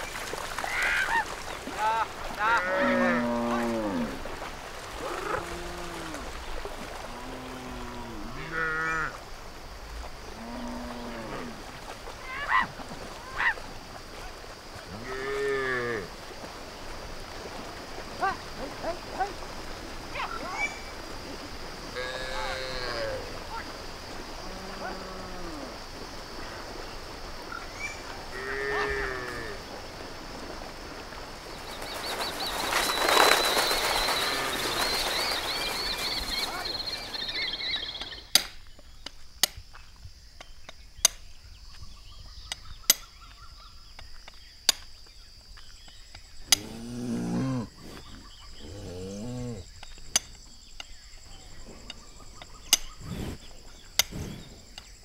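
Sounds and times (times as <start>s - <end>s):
rushing water: 0.0s - 8.4s, 9.0s - 38.2s
cattle lowing: 46.4s - 50.0s, 51.2s - 54.8s.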